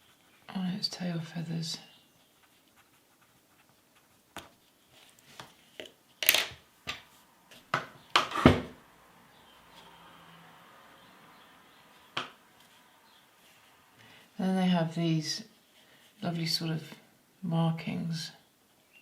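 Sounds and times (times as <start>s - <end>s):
pencils clattering: 5.7s - 6.6s.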